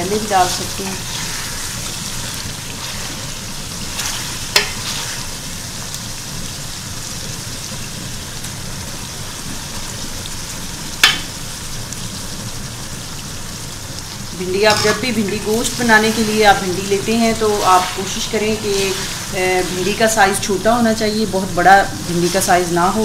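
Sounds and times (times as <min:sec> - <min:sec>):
curry sizzling in a pot: 0:00.0 - 0:23.0
wooden spatula stirring: 0:14.6 - 0:20.5.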